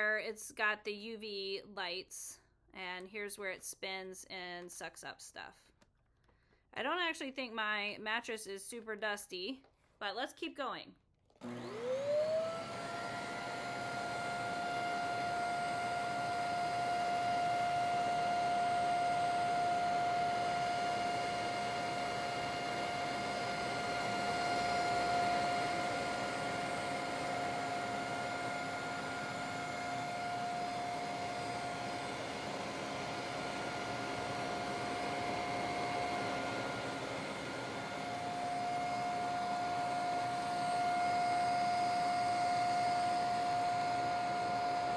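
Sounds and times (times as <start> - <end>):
vacuum cleaner motor whine: 11.4 - 44.9.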